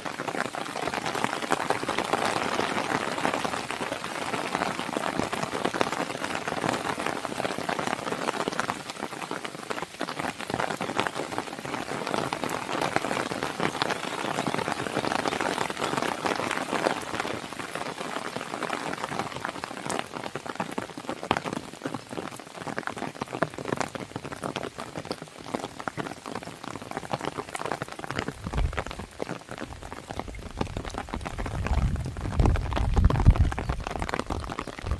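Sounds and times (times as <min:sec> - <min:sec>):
rain pattering on window: 0:00.0 - 0:34.9.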